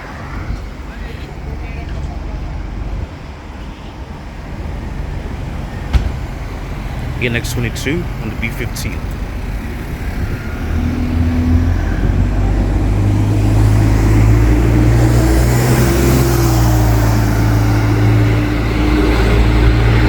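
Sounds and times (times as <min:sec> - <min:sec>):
bus diesel engine running: 0:04.1 - 0:20.0.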